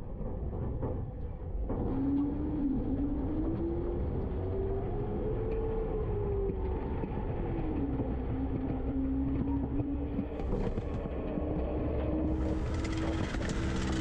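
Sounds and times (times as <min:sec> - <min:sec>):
whine: 0:09.3 - 0:14.0
garbage truck engine rumble: 0:10.3 - 0:14.0.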